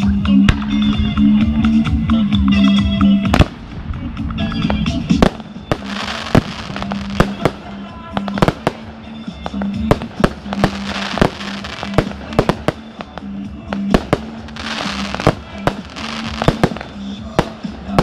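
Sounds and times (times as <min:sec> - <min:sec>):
music: 0:00.0 - 0:18.0
fireworks bangs: 0:03.3 - 0:03.8, 0:04.6 - 0:18.0.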